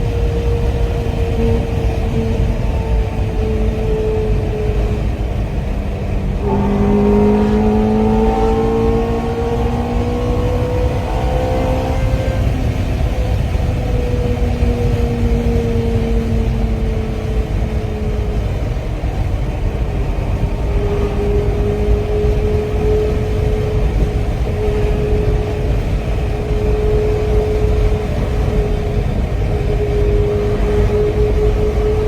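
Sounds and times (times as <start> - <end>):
vehicle engine running: 0.0 - 32.0.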